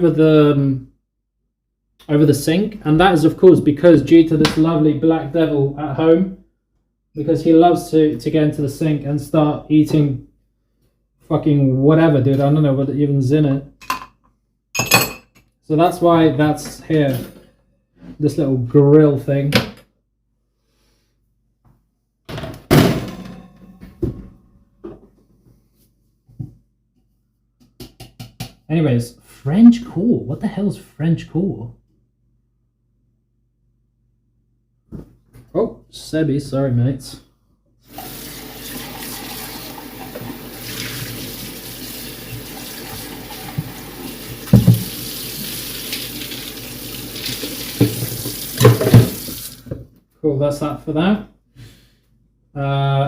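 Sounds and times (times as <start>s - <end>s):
loud clunk: 22.4s - 24.4s
tap running into sink: 42.3s - 46.4s, 47.1s - 49.8s.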